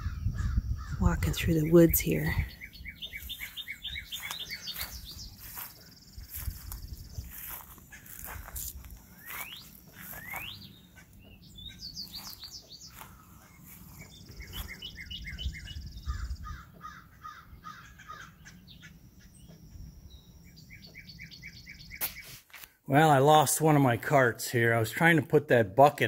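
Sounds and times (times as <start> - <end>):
rapid bird chirping: 0.0 - 22.3
rising bird whistles: 9.2 - 10.7.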